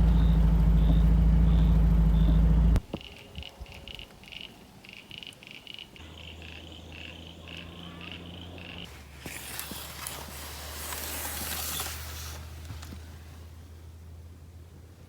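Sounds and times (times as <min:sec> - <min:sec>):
steady low hum: 0:00.0 - 0:02.8
frogs calling: 0:00.0 - 0:09.0.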